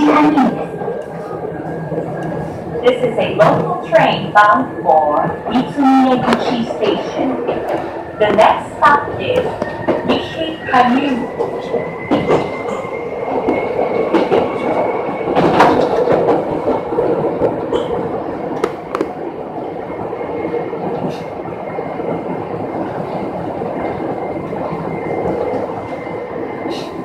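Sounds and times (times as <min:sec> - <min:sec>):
train wheels rumbling on track: 0:00.0 - 0:27.0
wheels clacking over rail joints: 0:03.3 - 0:19.3.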